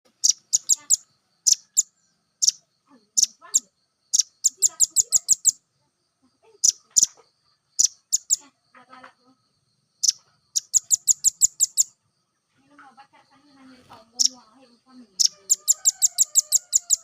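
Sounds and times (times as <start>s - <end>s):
bird chip calls: 0.1s - 5.6s, 6.6s - 8.5s, 10.0s - 12.0s, 14.1s - 14.4s, 15.2s - 17.0s.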